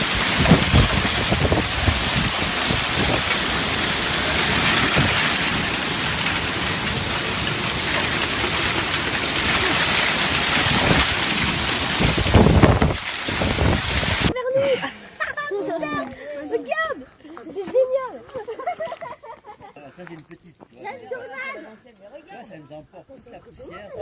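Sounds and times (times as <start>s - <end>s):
heavy rain pouring: 0.0s - 14.3s.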